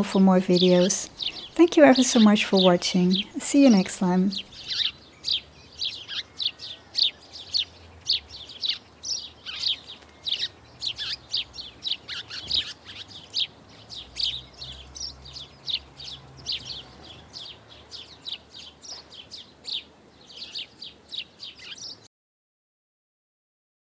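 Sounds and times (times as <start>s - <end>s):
small birds chirping: 0.0s - 22.1s.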